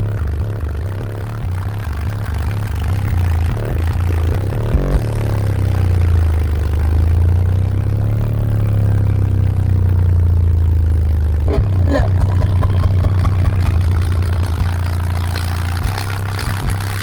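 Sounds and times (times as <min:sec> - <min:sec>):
deep bass from subwoofers: 0:00.0 - 0:17.0
faint rising and falling tone: 0:11.4 - 0:16.6.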